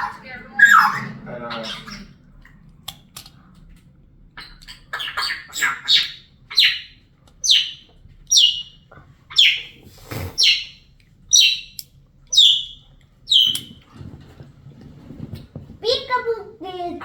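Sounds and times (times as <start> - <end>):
parrot calling and chirping: 0.0 - 2.2, 4.4 - 13.8.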